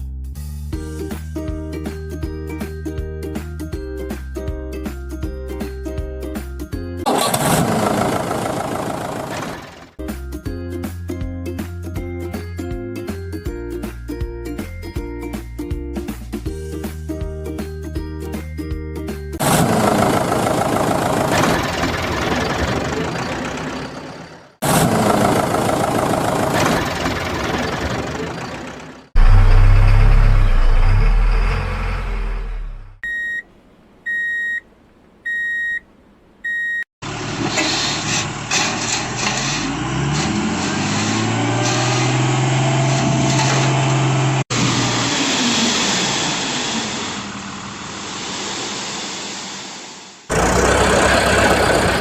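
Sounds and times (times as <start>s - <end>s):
heavy vehicle rumble: 7.0s - 10.0s, 19.4s - 52.0s
engine rising in pitch: 7.1s - 10.0s, 19.4s - 33.0s, 39.2s - 48.3s, 50.3s - 52.0s
deep low engine sound: 19.4s - 33.1s, 50.3s - 52.0s
electronic reversing beeps: 33.0s - 33.4s.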